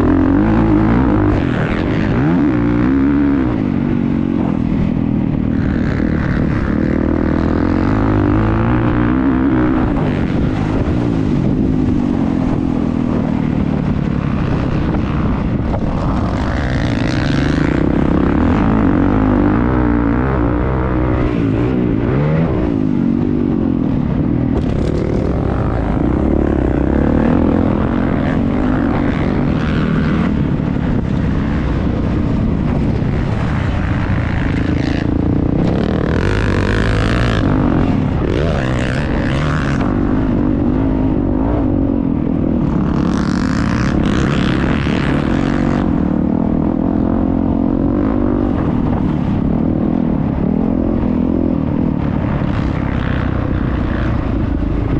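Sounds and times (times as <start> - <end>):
motocross bike engine revving: 0.0 - 49.4.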